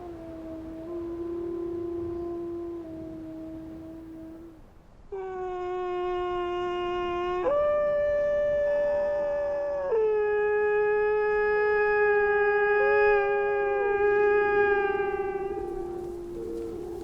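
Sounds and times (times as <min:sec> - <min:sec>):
wolves howling: 0:08.9 - 0:17.0.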